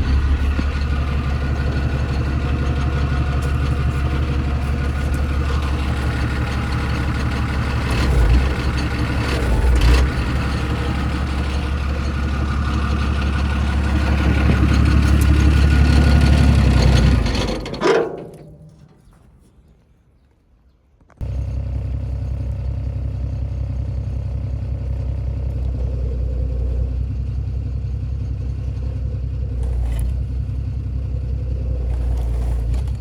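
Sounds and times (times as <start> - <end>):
heavy low thumps: 0.0 - 6.2
engine shutting off: 0.0 - 18.9, 21.2 - 33.0
excavator diesel engine running: 0.0 - 18.9, 21.2 - 33.0.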